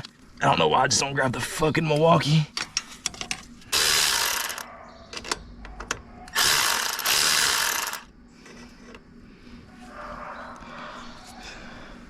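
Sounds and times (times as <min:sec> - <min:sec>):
ratchet wrench ratcheting: 0:03.7 - 0:04.6, 0:06.3 - 0:08.1.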